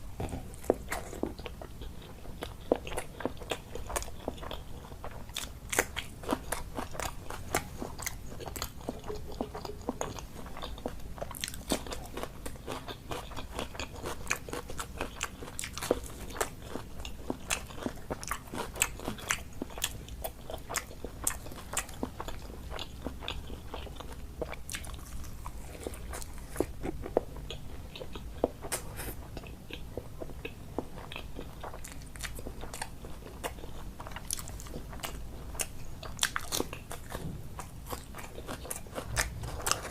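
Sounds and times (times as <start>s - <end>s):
chewing with crisp crunches: 0.0s - 39.9s.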